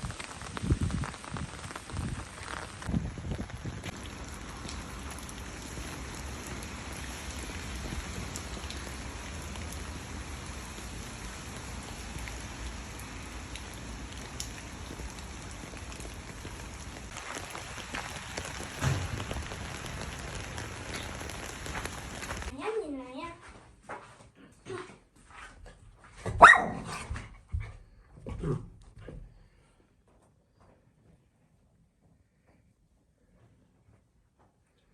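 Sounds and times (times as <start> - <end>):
rain pattering: 0.0 - 22.6
loud thump: 18.7 - 19.8.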